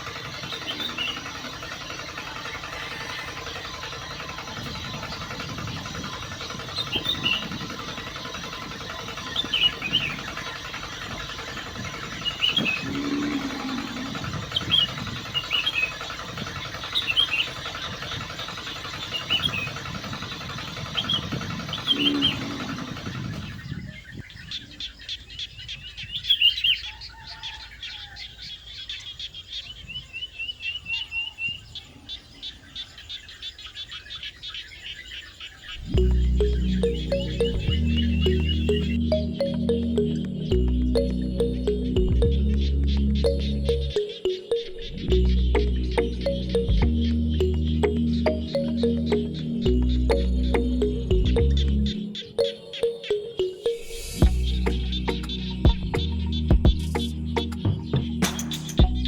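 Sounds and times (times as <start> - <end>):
birds chirping: 0.0 - 59.0
ticking trill: 35.9 - 59.0.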